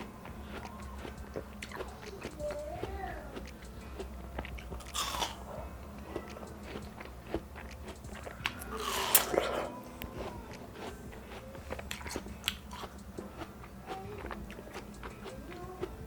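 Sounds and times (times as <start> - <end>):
wet mouth clicks: 0.0 - 5.5, 6.2 - 15.4
chewing watermelon: 0.0 - 16.0.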